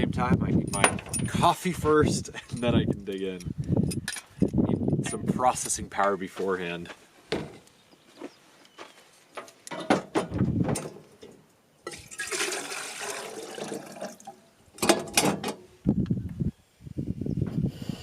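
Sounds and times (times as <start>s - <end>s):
water being poured: 11.9s - 14.4s.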